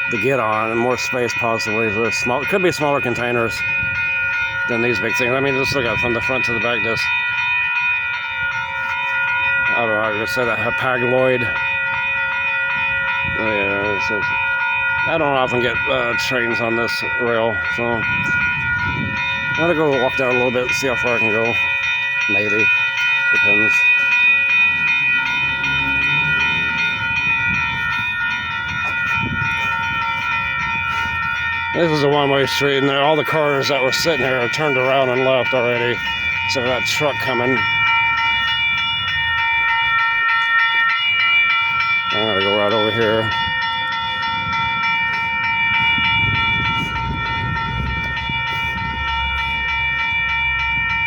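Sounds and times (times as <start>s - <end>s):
freight train whine: 0.0s - 51.0s
railroad crossing bell ringing: 0.0s - 51.0s.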